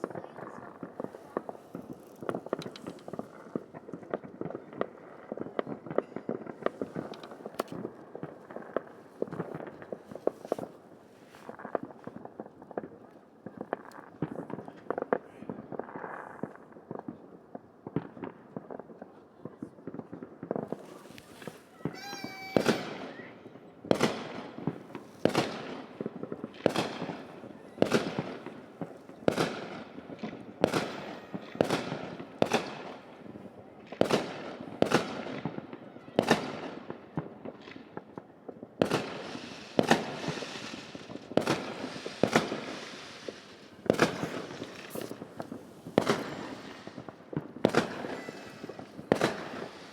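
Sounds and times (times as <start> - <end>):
fireworks bangs and crackles: 0.0 - 49.9
loud echoing firework bangs: 20.5 - 38.0, 38.8 - 49.9
whistling firework shell: 21.0 - 23.3, 42.2 - 49.9.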